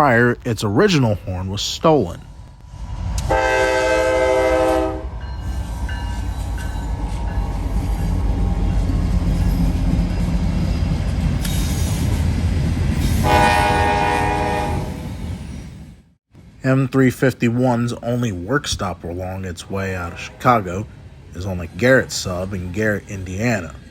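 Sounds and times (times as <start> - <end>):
train rumbling past: 1.1 - 23.9
train horn blast: 3.2 - 5.2, 13.2 - 15.1, 19.8 - 21.0.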